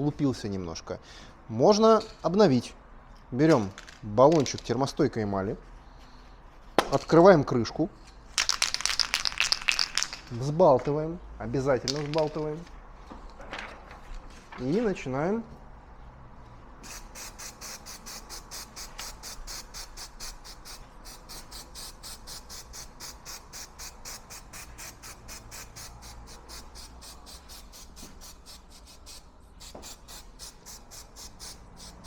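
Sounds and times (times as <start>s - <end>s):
aerosol can spraying: 16.8s - 32.0s.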